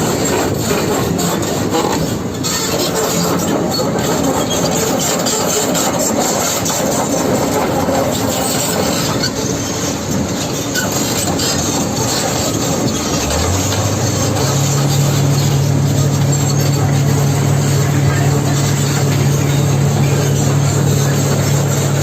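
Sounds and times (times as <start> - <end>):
excavator engine and tracks: 0.0 - 22.0
engine revving up: 10.9 - 22.0.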